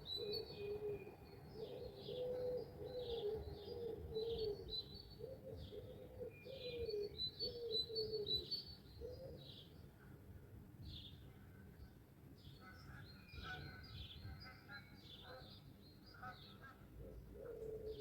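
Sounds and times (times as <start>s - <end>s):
low cooing call: 0.2s - 8.3s, 17.0s - 18.0s.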